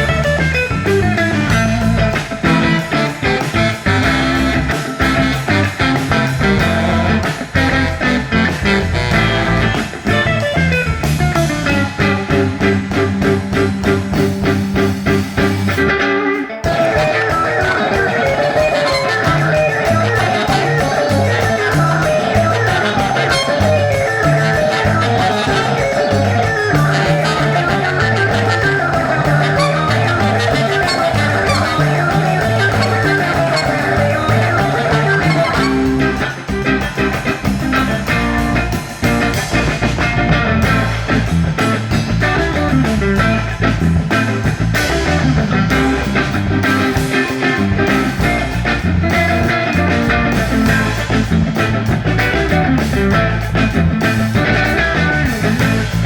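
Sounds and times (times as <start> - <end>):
bass guitar line: 0.0 - 56.0
drum kit: 0.0 - 56.0
electric guitar: 0.0 - 56.0.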